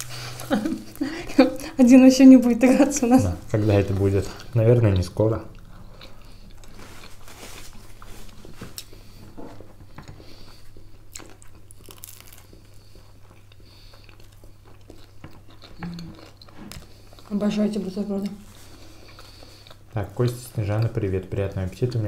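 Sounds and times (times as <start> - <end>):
steady low hum: 0.0 - 22.0
biting and chewing bread: 4.0 - 17.4
crisp crunches: 11.2 - 12.8
mouth sounds: 15.8 - 16.2.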